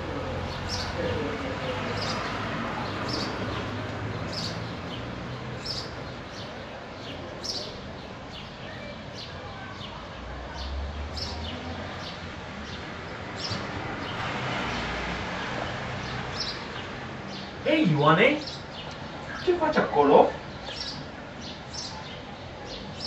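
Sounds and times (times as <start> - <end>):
outdoor background noise: 0.0 - 23.0
bird chirping: 0.4 - 10.0, 16.0 - 23.0.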